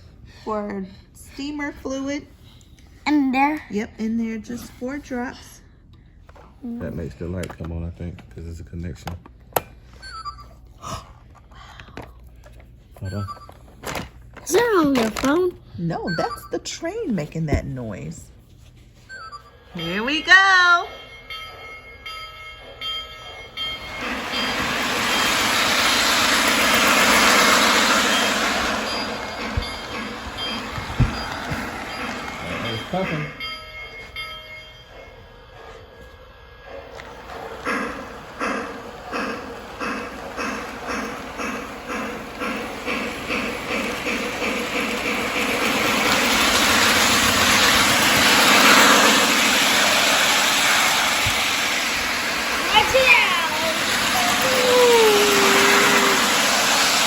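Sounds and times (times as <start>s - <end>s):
steam hiss: 23.8s - 33.1s, 37.1s - 57.0s.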